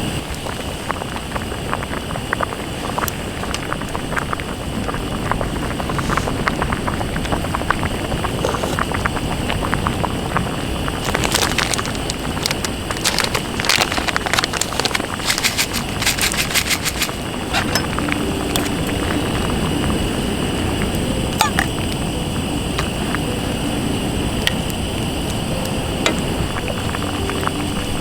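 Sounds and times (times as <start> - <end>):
campfire crackling and popping: 0.0 - 28.0
sea wind rushing: 0.0 - 28.0.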